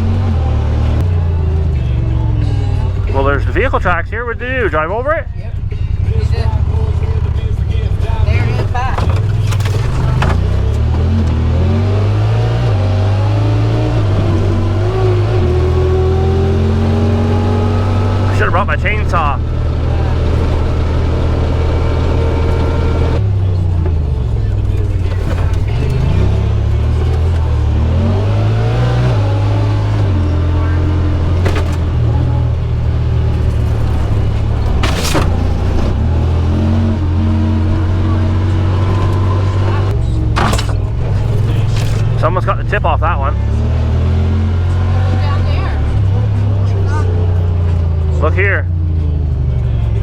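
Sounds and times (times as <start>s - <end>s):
utility vehicle engine running: 0.0s - 50.0s
vehicle knocking over debris: 7.8s - 11.2s, 30.8s - 37.1s, 39.9s - 42.2s.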